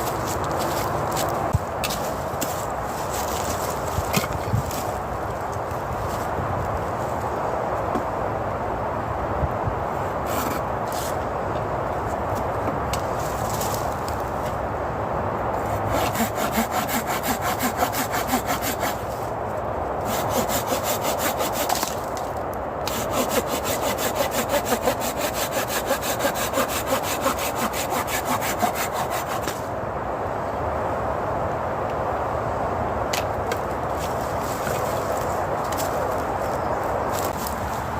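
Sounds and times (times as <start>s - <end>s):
hand saw cutting wood: 10.2s - 10.6s, 15.6s - 19.3s, 20.0s - 22.2s, 22.8s - 29.7s.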